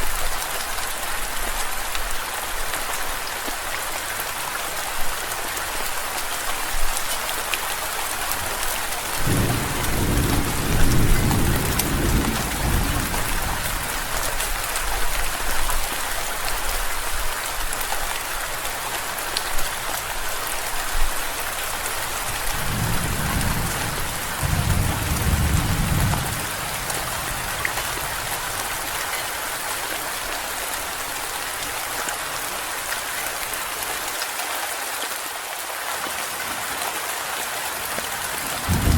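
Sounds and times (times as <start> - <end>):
heavy rain hissing: 3.0 - 15.1, 17.4 - 32.8, 38.1 - 38.9
thunder rumbling: 9.2 - 13.7, 22.5 - 28.9, 38.6 - 38.9.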